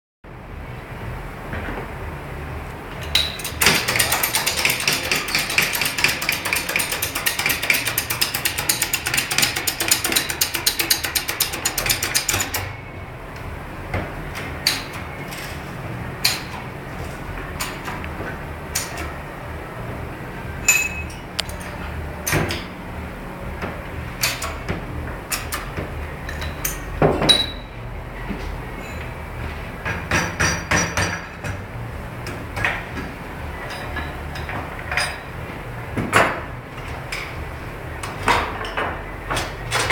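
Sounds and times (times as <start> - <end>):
rapid clicking of tools on metal: 3.0 - 12.8, 14.4 - 15.5, 24.2 - 24.7, 25.3 - 26.9.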